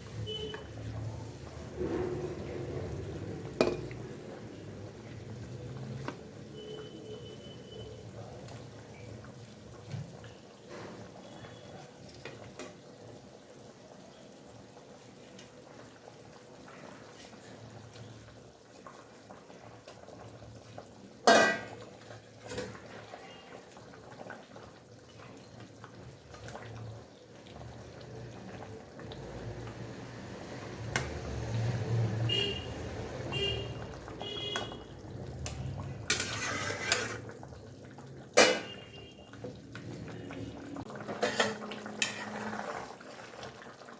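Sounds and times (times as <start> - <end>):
curry bubbling in a pot: 0.0 - 43.9
metal spatula clinking on pot: 36.1 - 37.2, 41.1 - 42.4.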